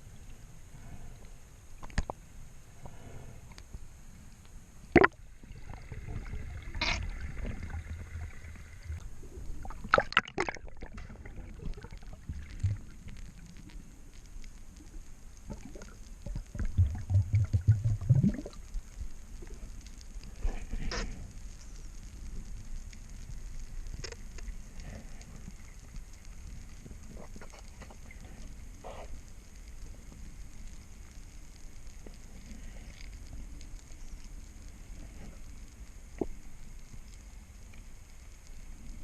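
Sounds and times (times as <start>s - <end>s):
water gurgling and sloshing: 4.8s - 14.2s, 14.8s - 21.4s.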